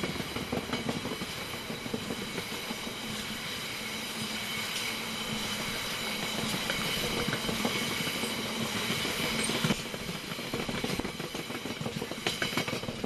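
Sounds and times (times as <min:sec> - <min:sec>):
wheels clattering over rail joints: 0:06.2 - 0:13.0.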